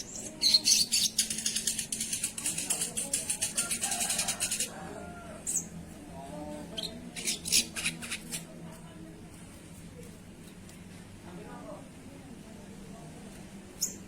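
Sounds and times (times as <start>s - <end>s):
bird calling high chatter: 0.0s - 4.7s, 6.7s - 8.4s.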